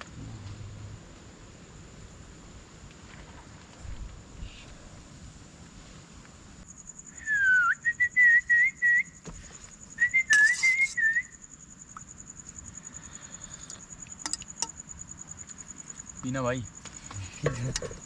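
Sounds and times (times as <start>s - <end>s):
crickets chirping: 0.0s - 18.0s
person whistling a tune: 7.2s - 9.1s, 10.0s - 11.3s.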